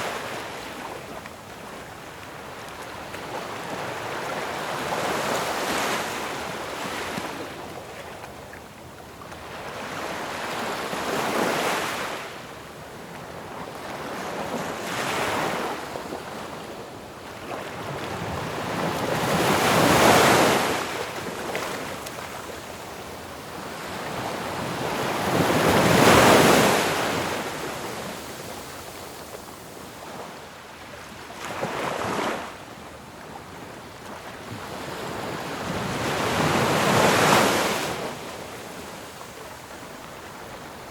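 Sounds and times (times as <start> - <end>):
ocean waves breaking on shore: 13.3 - 40.9.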